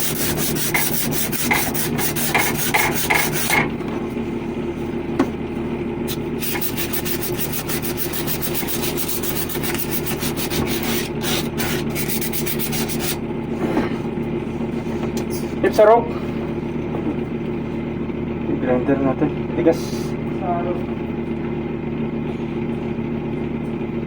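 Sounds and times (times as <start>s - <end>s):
scraping on copper pipe: 0.0s - 3.6s, 6.1s - 13.2s
low mechanical hum: 0.0s - 24.0s.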